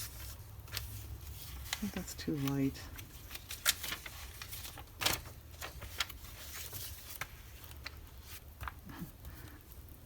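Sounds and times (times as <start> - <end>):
paper rustling and crinkling: 0.0 - 9.4.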